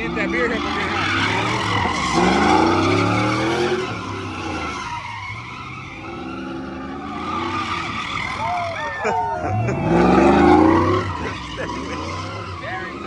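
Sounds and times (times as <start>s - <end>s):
truck engine revving: 0.0s - 13.0s
tyre screech: 0.0s - 13.0s.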